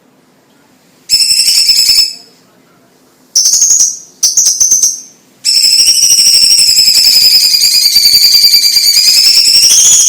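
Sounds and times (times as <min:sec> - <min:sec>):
bird singing trills: 0:01.1 - 0:02.3, 0:03.4 - 0:10.0.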